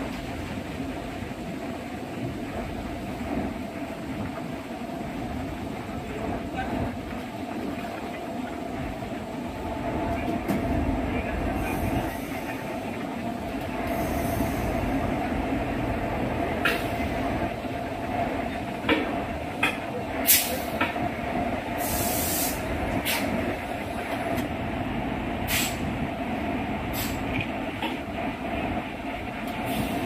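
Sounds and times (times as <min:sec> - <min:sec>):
train rumble and hum: 0:00.0 - 0:30.0
sharp clicks and knocks: 0:18.8 - 0:20.0
short hiss: 0:21.8 - 0:23.4.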